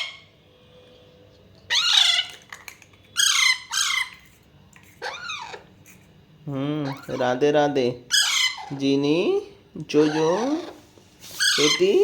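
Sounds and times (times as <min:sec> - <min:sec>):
parakeet chicks begging squawks: 0:00.0 - 0:00.3, 0:01.7 - 0:04.4, 0:05.0 - 0:05.9, 0:06.8 - 0:09.3, 0:09.9 - 0:12.0.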